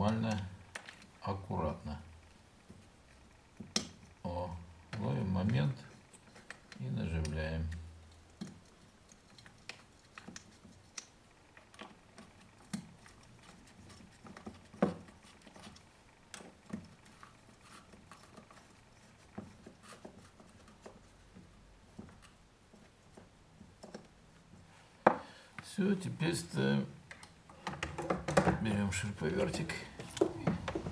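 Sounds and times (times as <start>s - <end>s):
tools clicking and tapping: 2.6s - 4.2s, 4.9s - 25.3s, 27.1s - 30.9s.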